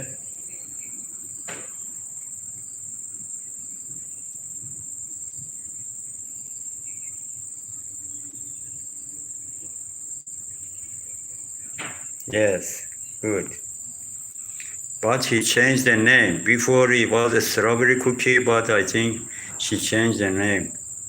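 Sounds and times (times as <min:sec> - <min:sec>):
high-pitched insect chirring: 0:00.0 - 0:21.0
low background hum: 0:10.2 - 0:21.0.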